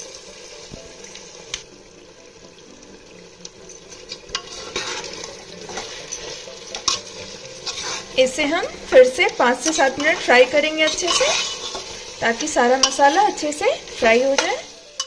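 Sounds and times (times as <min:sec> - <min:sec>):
chicken frying with a sizzle: 0:00.0 - 0:15.0
steel spoon clinking and scraping pot: 0:03.7 - 0:15.0.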